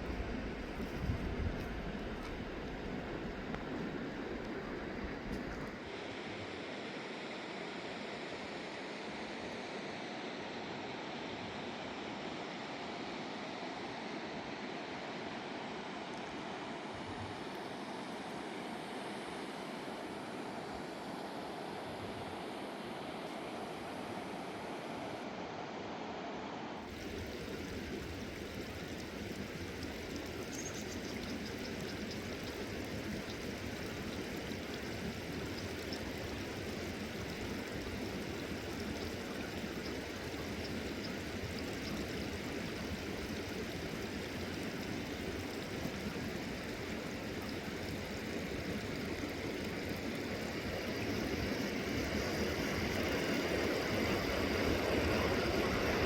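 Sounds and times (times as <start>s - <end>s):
river water rushing: 26.9s - 56.0s.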